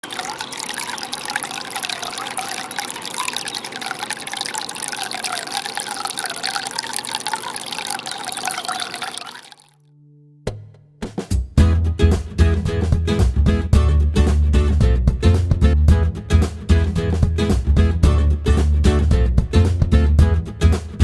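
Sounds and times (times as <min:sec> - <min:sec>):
fountain water splashing: 0:00.0 - 0:09.7.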